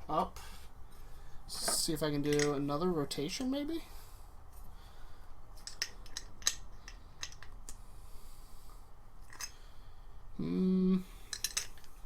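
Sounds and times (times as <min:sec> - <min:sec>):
person humming: 0:10.4 - 0:11.1.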